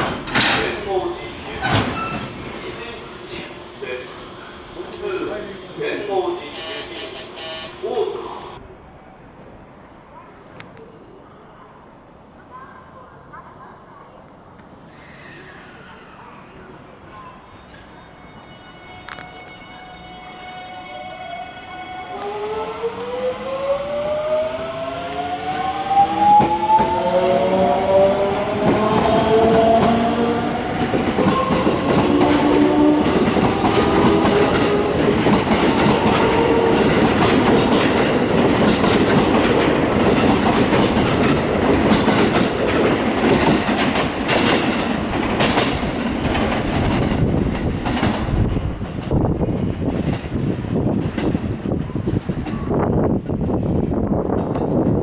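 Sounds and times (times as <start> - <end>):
electric train motor whine: 3.2 - 9.9.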